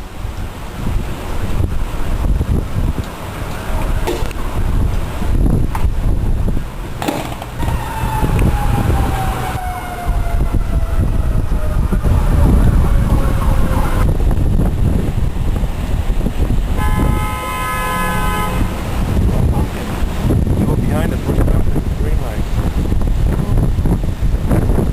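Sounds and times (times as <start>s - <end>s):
wind buffeting microphone: 0.0s - 24.9s
siren winding down: 7.0s - 14.0s
steady horn-like tone: 16.8s - 18.8s.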